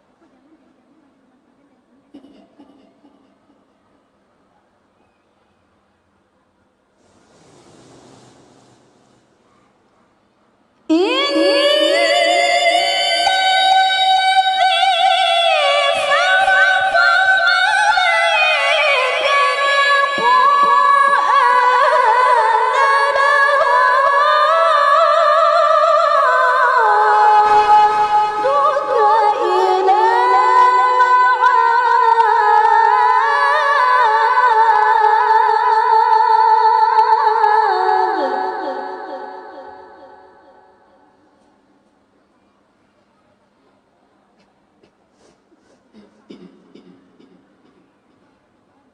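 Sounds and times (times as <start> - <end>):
woman reciting melodically: 10.9 - 41.2.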